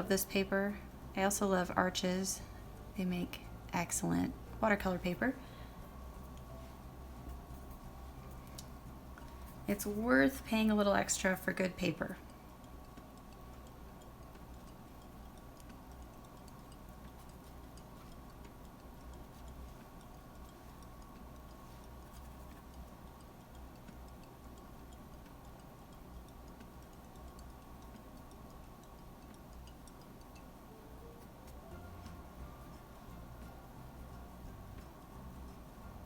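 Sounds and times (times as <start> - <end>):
faint steady hum: 0.0 - 36.0
faint light ticks: 10.6 - 35.9.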